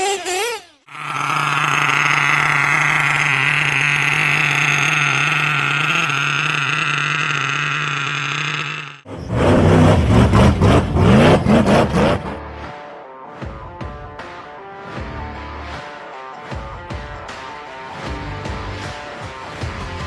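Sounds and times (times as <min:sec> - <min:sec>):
rc car engine whining: 0:00.0 - 0:12.4.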